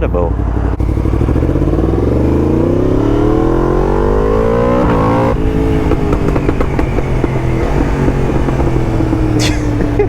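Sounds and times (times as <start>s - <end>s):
motorcycle engine revving: 0.0s - 10.0s
exhaust pops and crackles: 4.6s - 10.0s.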